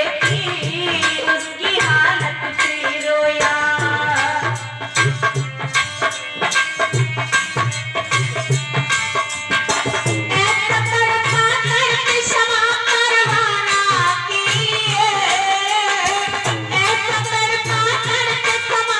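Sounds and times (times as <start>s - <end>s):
hand drum beat: 3.4s - 12.3s.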